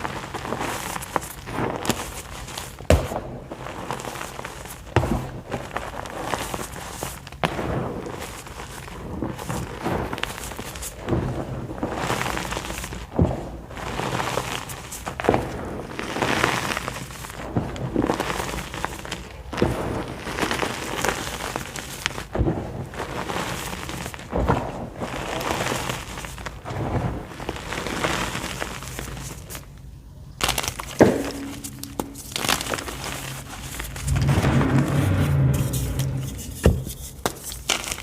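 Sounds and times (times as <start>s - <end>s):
chalk being crushed: 30.4s - 34.3s, 35.4s - 38.0s.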